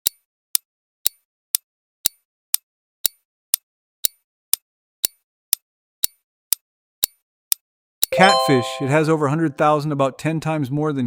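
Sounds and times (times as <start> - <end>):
countdown timer ticking: 8.2 - 9.5.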